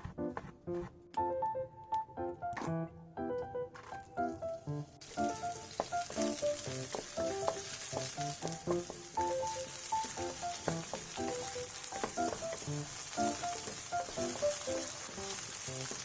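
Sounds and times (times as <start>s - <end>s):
background music with quick notes: 0.0s - 16.0s
food sizzling in a pan: 4.5s - 16.0s.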